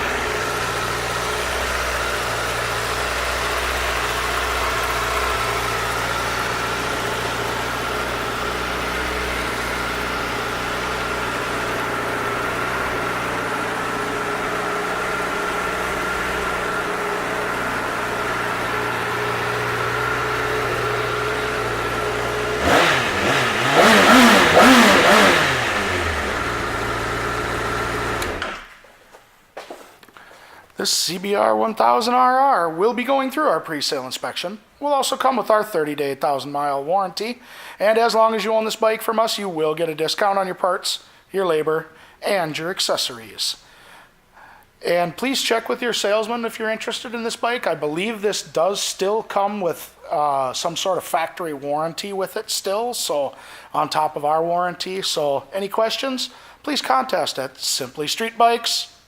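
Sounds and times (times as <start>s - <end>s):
motorcycle engine idling and revving: 0.0s - 28.7s.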